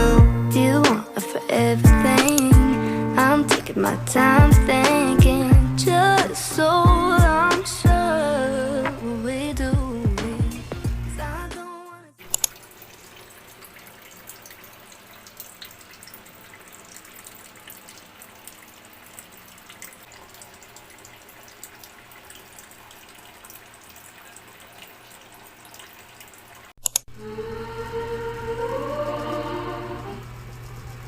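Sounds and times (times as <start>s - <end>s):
faint running water noise: 0.0s - 11.2s, 12.2s - 31.0s
sharp clicks: 2.2s - 2.5s, 26.8s - 27.1s.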